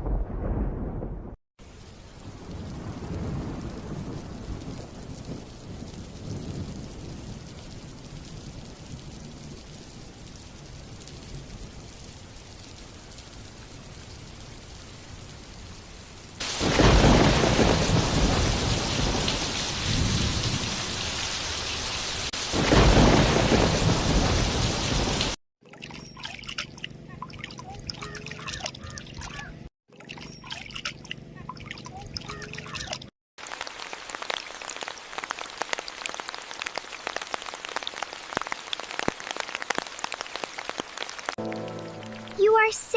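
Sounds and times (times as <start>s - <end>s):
thunder rolling: 0.0s - 11.9s, 16.4s - 21.6s, 22.3s - 25.4s
rain falling: 1.6s - 25.4s, 31.2s - 42.9s
raindrops striking a surface: 1.6s - 25.4s, 26.1s - 29.5s, 30.2s - 42.9s.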